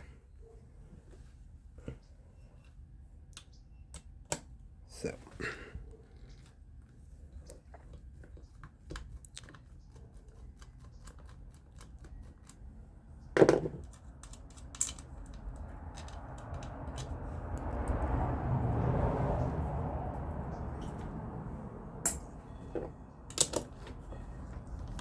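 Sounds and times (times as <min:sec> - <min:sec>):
small clicks and taps of parts: 0:07.4 - 0:12.7, 0:13.6 - 0:18.0.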